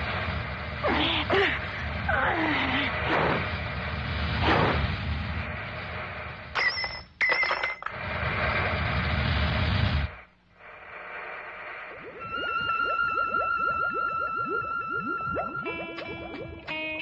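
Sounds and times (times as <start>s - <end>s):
loud rumbling noise: 0.0s - 6.6s, 7.9s - 13.4s
electronic musical tones: 12.0s - 17.0s.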